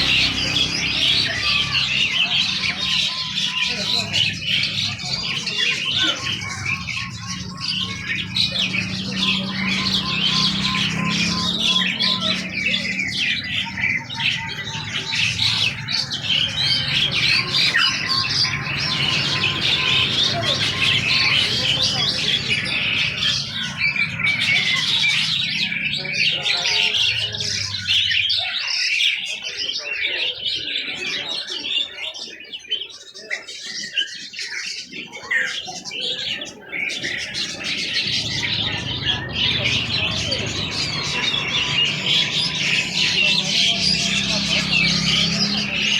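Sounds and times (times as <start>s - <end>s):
songbirds chirping and squawking: 0.0s - 45.9s.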